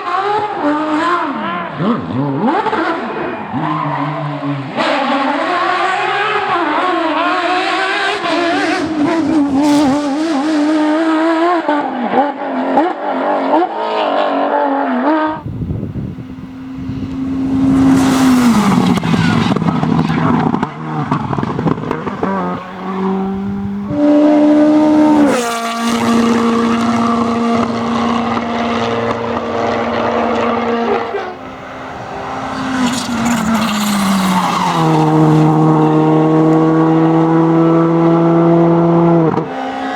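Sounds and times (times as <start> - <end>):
high-revving rally car engine: 0.0 - 39.9
tyre and road noise: 15.3 - 39.9.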